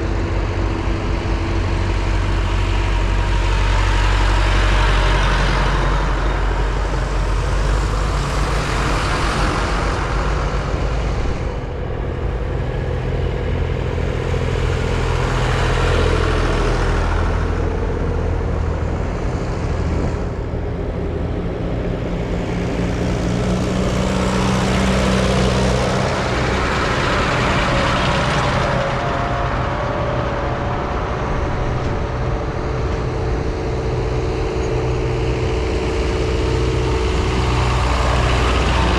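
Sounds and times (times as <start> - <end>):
diesel tractor engines running: 0.0 - 38.9.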